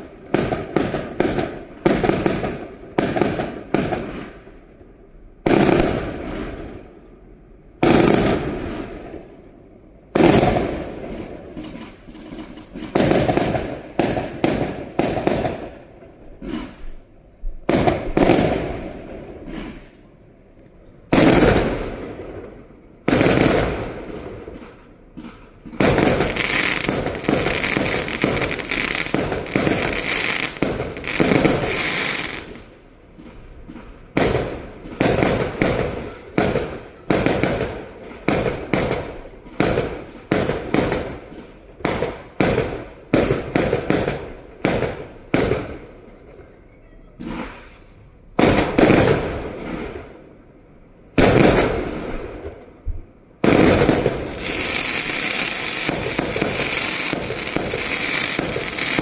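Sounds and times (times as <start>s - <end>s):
fireworks banging and crackling: 0.0s - 7.2s, 7.8s - 46.6s, 47.2s - 59.0s.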